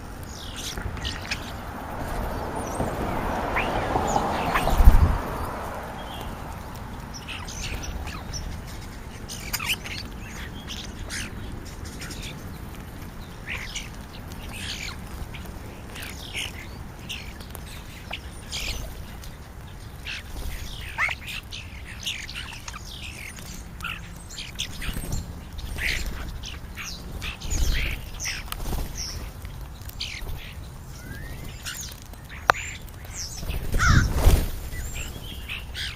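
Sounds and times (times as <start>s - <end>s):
steady low rumble: 0.0s - 11.1s
starlings chirping and whistling: 0.0s - 35.9s.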